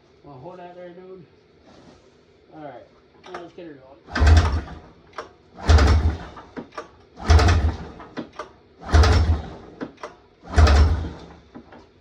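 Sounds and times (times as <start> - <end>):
snowmobile engine cranking on recoil starter: 4.1 - 11.9.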